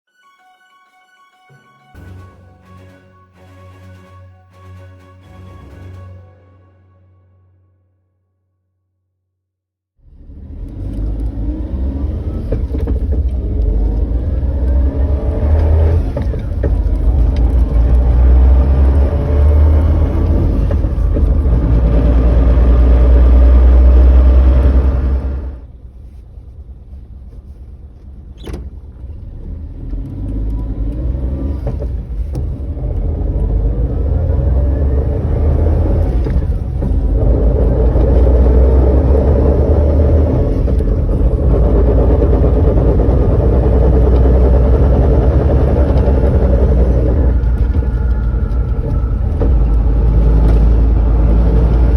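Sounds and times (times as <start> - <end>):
harsh drivetrain noise: 10.1 - 25.7, 28.5 - 51.9.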